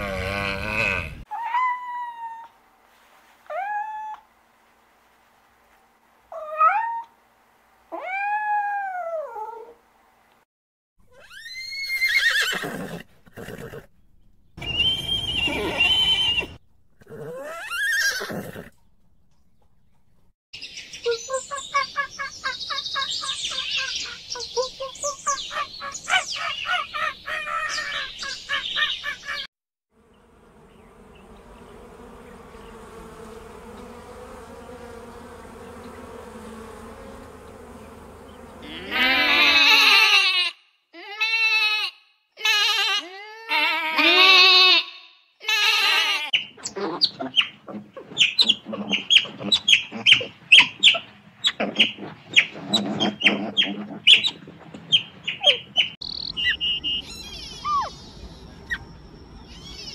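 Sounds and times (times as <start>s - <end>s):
fast repeated animal calls: 46.4s - 56.0s
zebras calling: 46.4s - 56.0s.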